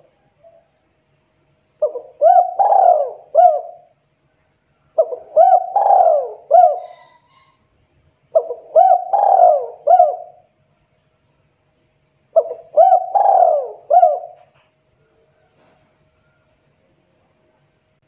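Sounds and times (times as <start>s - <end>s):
dove cooing: 1.8s - 3.9s, 4.9s - 7.6s, 8.3s - 10.5s, 12.4s - 14.6s.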